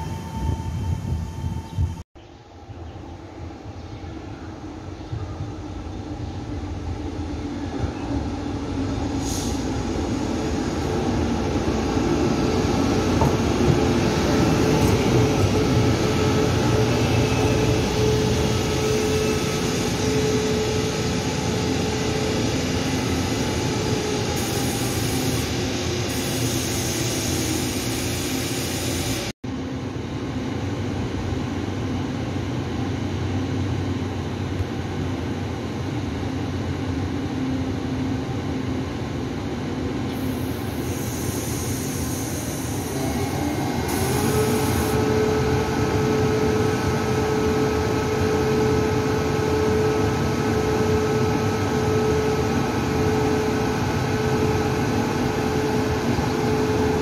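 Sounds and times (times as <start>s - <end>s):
train wheels rumbling: 3.9s - 28.4s.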